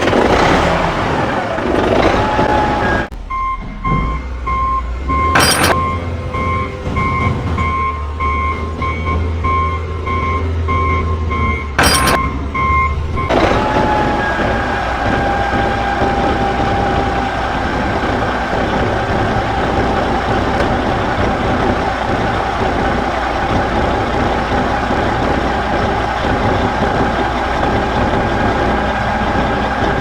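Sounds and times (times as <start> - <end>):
repeating electronic beep: 3.3 - 13.3.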